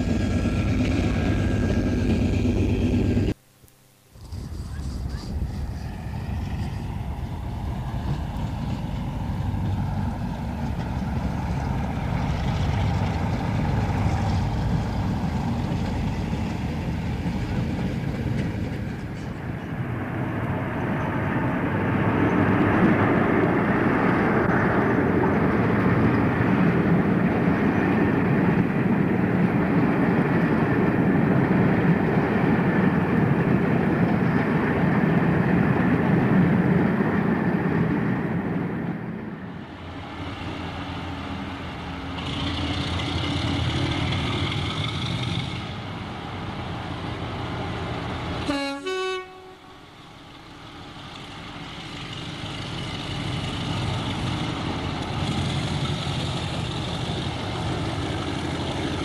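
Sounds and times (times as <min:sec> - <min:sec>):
train wheels and engine rumbling: 0:00.0 - 0:03.4, 0:04.1 - 0:59.0.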